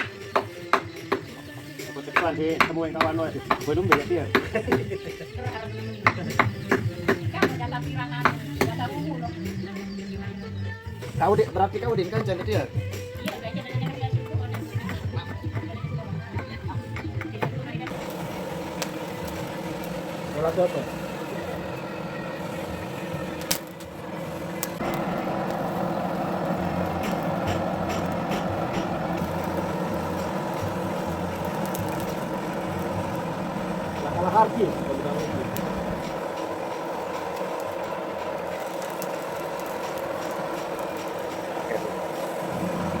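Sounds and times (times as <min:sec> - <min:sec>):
machine humming: 0:17.9 - 0:43.0.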